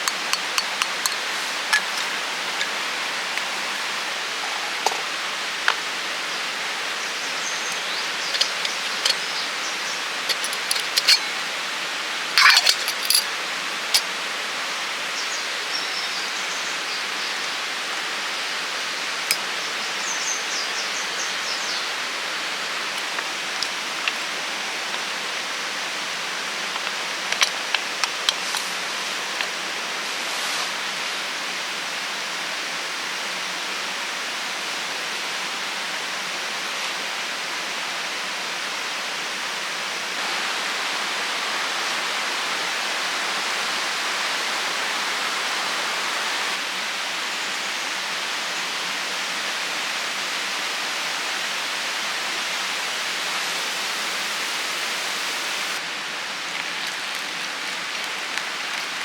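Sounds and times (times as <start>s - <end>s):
steady outdoor hiss: 0.0s - 59.0s
small clicks and crackles: 10.3s - 11.2s, 55.8s - 59.0s.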